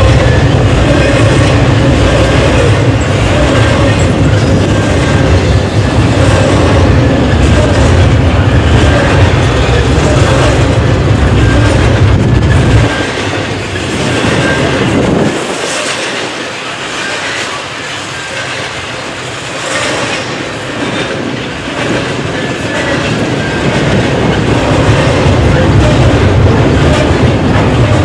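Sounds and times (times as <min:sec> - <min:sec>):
freight train rolling past: 0:00.0 - 0:28.0.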